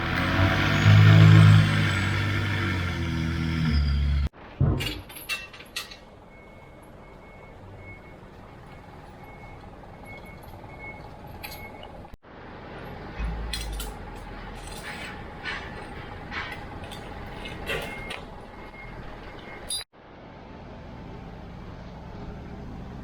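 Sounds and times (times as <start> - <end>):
metal clinks and knocks: 4.6 - 6.1, 13.2 - 18.3.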